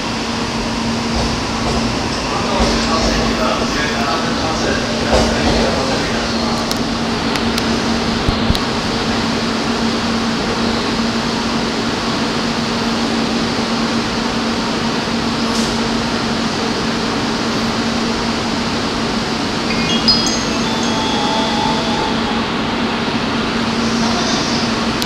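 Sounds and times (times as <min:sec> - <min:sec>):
train electric hum: 0:00.0 - 0:25.0
high electronic chime notes: 0:19.7 - 0:23.7.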